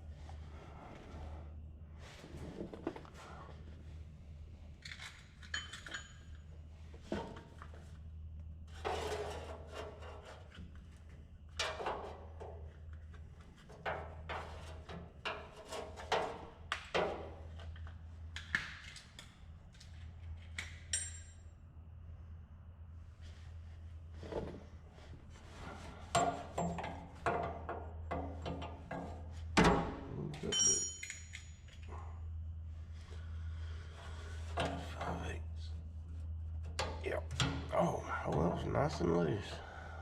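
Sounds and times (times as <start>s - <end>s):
steady low hum: 0.0s - 40.0s
metal tools clanking: 30.4s - 31.9s
metallic ring: 30.5s - 31.7s.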